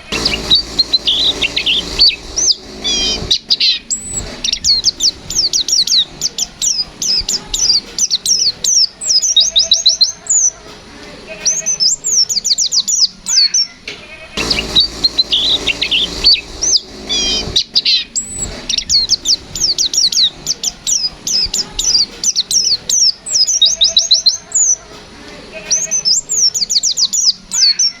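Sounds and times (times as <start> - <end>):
hiss: 0.0 - 9.7, 14.4 - 24.1.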